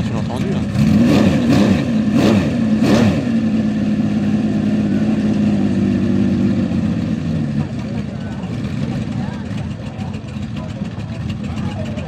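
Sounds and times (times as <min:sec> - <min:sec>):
engine revving: 0:00.0 - 0:09.5
engine idling: 0:00.0 - 0:12.0.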